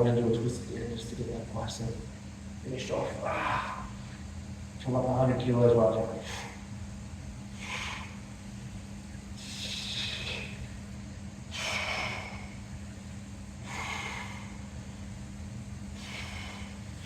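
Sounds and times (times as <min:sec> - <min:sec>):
steady low hum: 0:00.0 - 0:17.0
man breathing hard: 0:06.2 - 0:06.7, 0:07.5 - 0:15.3, 0:15.9 - 0:17.0.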